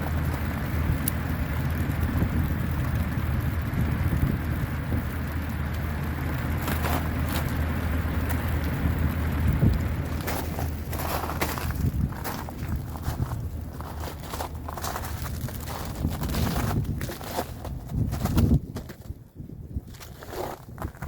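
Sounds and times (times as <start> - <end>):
wind buffeting microphone: 0.0 - 21.0
faint clicks: 1.0 - 1.2.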